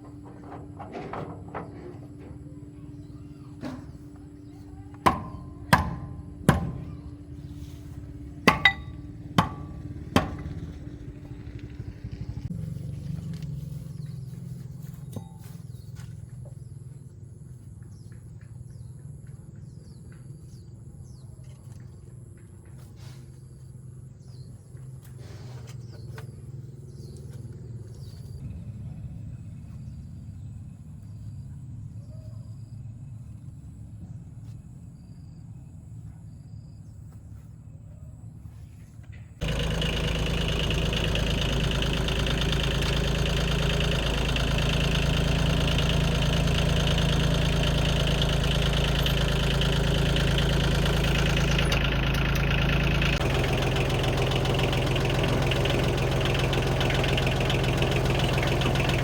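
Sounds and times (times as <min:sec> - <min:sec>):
engine humming: 0:00.0 - 0:21.0, 0:23.4 - 0:37.5, 0:38.8 - 0:59.0
sharp metal knocks: 0:05.0 - 0:07.1, 0:08.4 - 0:10.8.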